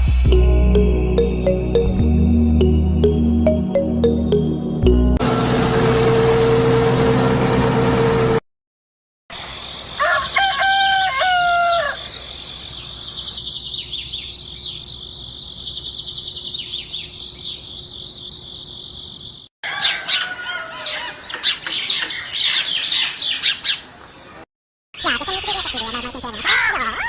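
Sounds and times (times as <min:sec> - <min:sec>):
loud steady humming noise: 0:05.2 - 0:08.4
rooster crowing: 0:10.0 - 0:12.2, 0:19.6 - 0:21.3, 0:26.5 - 0:27.0
small birds chirping: 0:12.0 - 0:24.4, 0:25.0 - 0:27.0.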